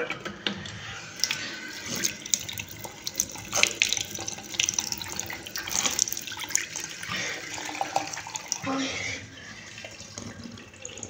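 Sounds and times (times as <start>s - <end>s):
tap water splashing into sink: 0.2s - 8.8s.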